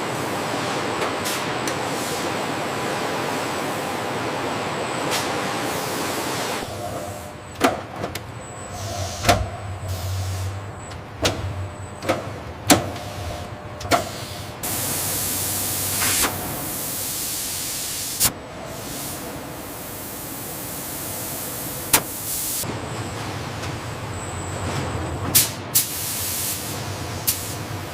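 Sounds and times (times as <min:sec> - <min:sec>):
low hum: 0:08.2 - 0:13.9.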